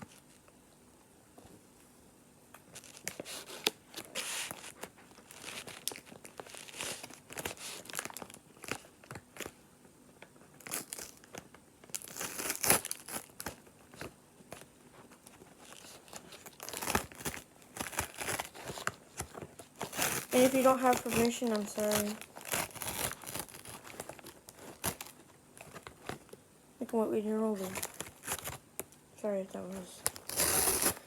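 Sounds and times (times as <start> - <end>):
paper bag crinkling and tearing: 2.7 - 9.6, 10.6 - 14.7, 15.3 - 26.4, 27.4 - 28.6, 29.6 - 31.0.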